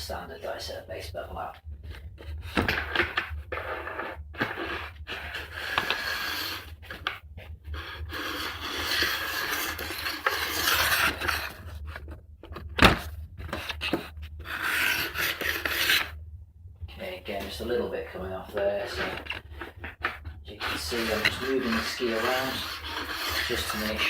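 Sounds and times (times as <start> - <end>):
metal file rasping on steel edge: 20.8 - 24.0.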